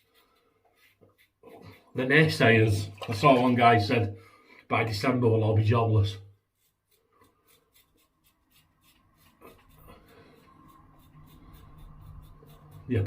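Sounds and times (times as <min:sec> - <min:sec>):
razor scratching through stubble: 0:00.0 - 0:02.5, 0:06.4 - 0:13.0.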